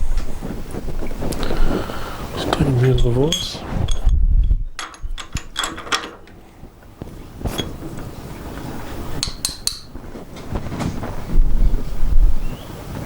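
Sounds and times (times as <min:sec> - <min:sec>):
metal parts clinking: 0:02.3 - 0:04.1, 0:04.8 - 0:06.4.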